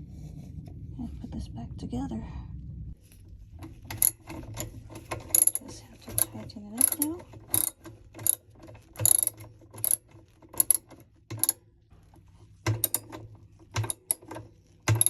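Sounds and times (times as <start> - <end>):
ratchet wrench clicking: 3.9 - 11.6, 12.7 - 13.2, 13.8 - 15.0.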